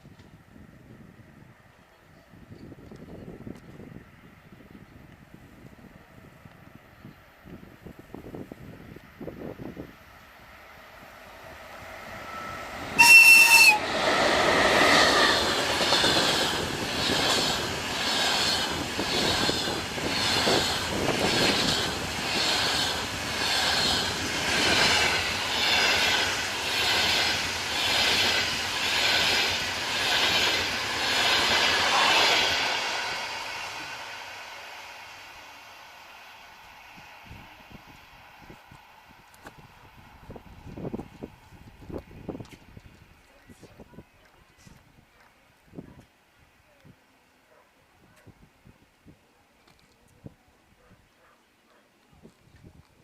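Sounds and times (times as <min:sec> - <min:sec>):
train wheels passing: 0:07.5 - 0:43.1
locomotive horn blast: 0:12.3 - 0:14.1.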